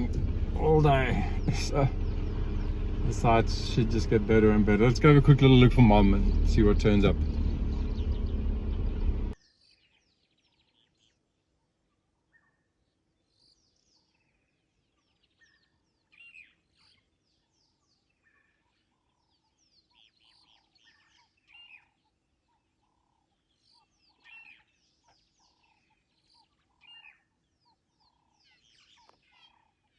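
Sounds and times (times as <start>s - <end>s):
vehicle running noise: 0.0s - 9.4s
birdsong chirps and whistles: 0.0s - 11.2s, 12.3s - 22.0s.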